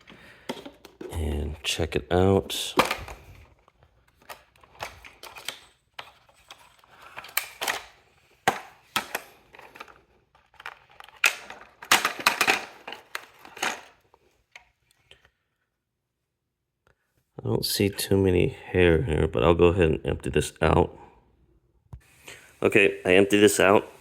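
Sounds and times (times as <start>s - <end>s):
plastic dust bin clicks and rattles: 10.6s - 13.9s.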